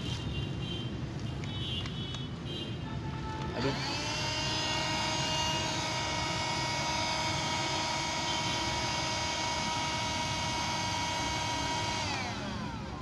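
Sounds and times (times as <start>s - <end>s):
handheld vacuum cleaner running: 3.6s - 13.0s.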